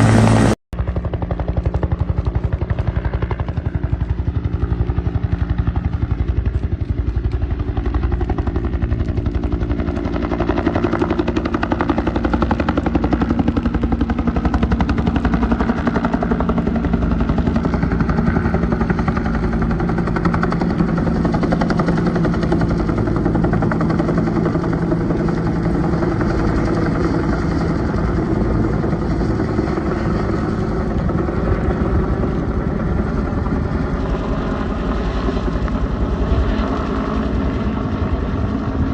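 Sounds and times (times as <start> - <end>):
helicopter engine tone: 0.0 - 38.9
helicopter rotor beat: 0.0 - 38.9.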